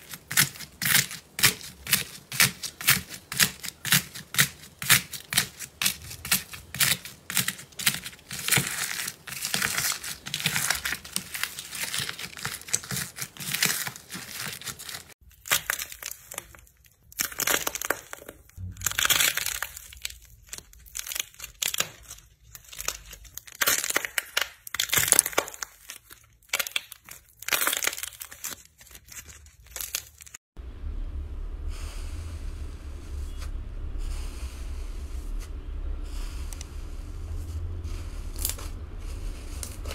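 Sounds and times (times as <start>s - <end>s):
slime crackling and popping: 0.0s - 30.4s
steady low hum: 30.6s - 39.9s.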